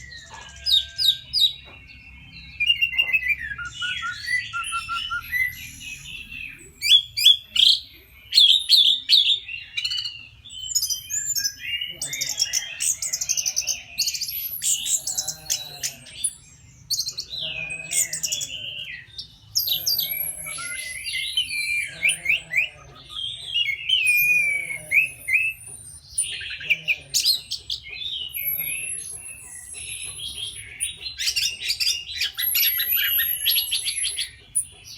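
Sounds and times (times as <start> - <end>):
thrush singing warbling song: 0.0 - 34.9.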